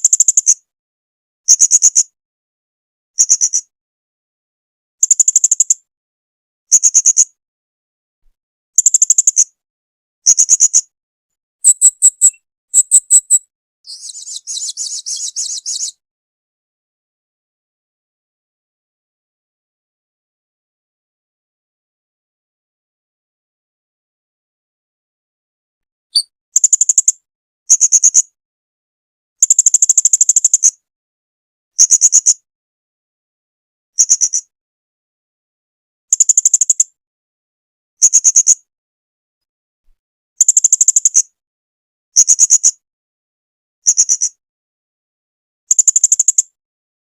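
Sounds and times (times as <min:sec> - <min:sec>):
parrot chirping and twittering: 0:11.6 - 0:15.9.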